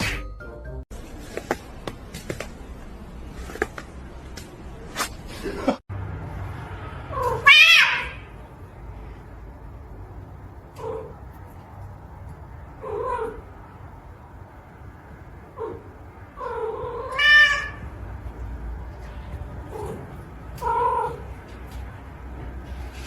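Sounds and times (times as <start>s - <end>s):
cat yowling: 7.1s - 8.3s, 12.8s - 13.5s, 15.6s - 17.9s.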